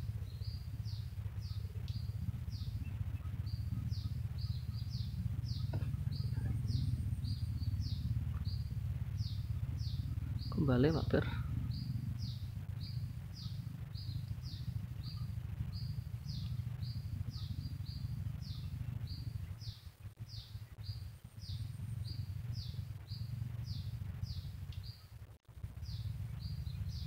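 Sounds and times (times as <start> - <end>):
low rumble: 0.0 - 27.0
bird calling repeated phrase: 9.2 - 14.1.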